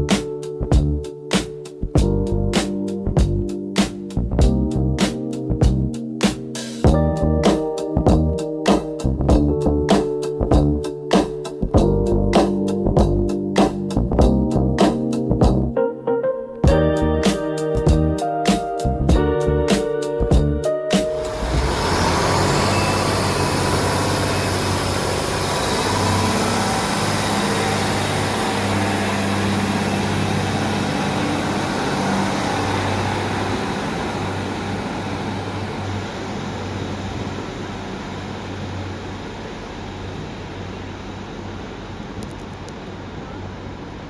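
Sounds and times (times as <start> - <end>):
train running: 21.0 - 44.0.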